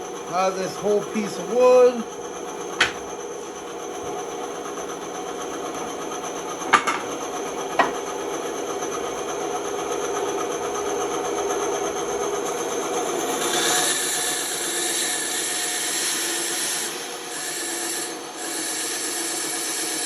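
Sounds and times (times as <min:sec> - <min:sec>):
electric saw running: 0:00.0 - 0:15.3
sharp knocks: 0:02.8 - 0:03.2, 0:06.7 - 0:07.2, 0:07.8 - 0:08.0.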